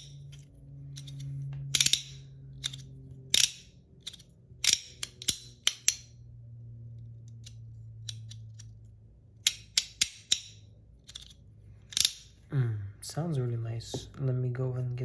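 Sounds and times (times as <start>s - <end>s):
fidget toy clicking: 7.3s - 8.8s.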